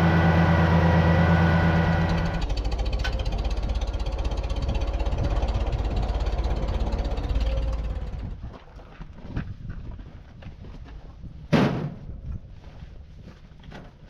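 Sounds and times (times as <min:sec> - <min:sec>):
tractor engine idling: 0:00.0 - 0:08.4.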